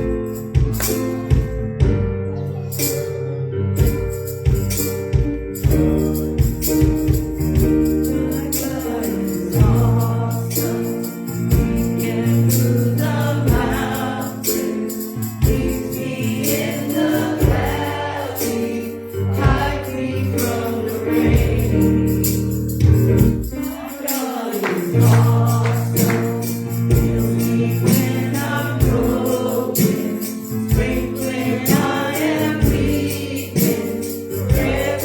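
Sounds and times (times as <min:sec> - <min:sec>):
percussion hits: 0:00.0 - 0:02.1, 0:03.8 - 0:35.0
tambourine: 0:00.0 - 0:35.0
voices singing: 0:07.8 - 0:22.5, 0:23.3 - 0:35.0.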